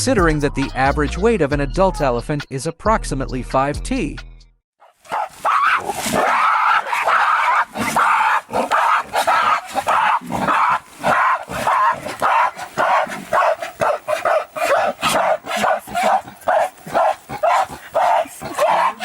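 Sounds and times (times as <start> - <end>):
dog barking: 4.8 - 19.0.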